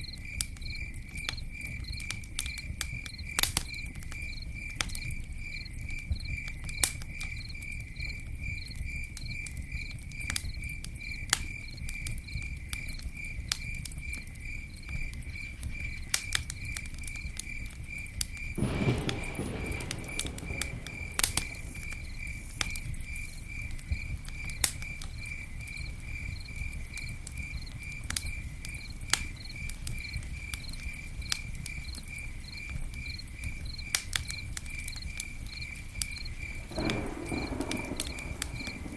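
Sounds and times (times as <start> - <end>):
campfire crackling and popping: 0.0 - 38.9
cricket chirping: 0.0 - 38.9
fire hissing: 15.0 - 38.9.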